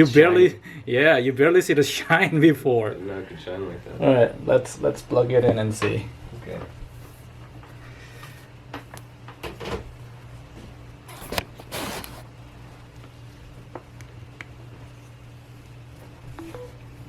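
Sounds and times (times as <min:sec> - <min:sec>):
steady low hum: 0:00.0 - 0:17.0
short scrape: 0:11.1 - 0:12.3.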